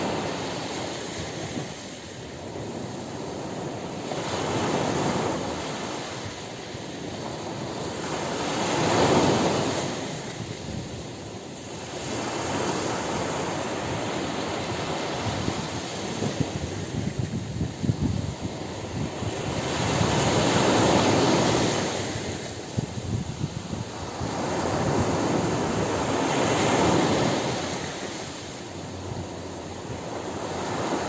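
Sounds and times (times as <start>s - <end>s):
ocean waves breaking on beach: 0.0s - 31.0s.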